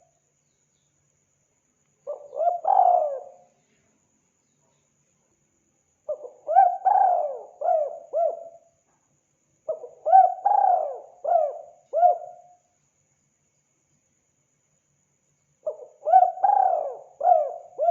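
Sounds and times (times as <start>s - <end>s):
dove cooing: 2.1s - 3.4s, 6.1s - 8.6s, 9.7s - 12.4s, 15.7s - 17.9s.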